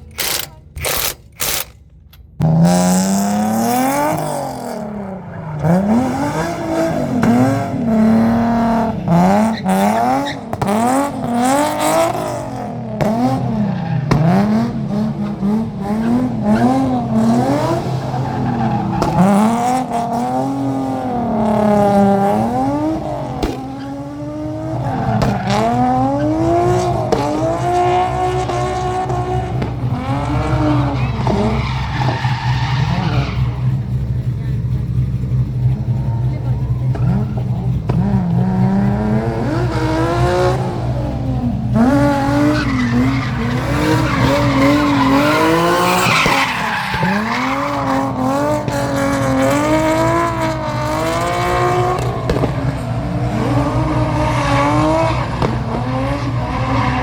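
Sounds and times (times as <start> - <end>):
car engine revving hard: 2.4 - 57.0
tyres squealing: 16.0 - 34.0, 35.7 - 57.0.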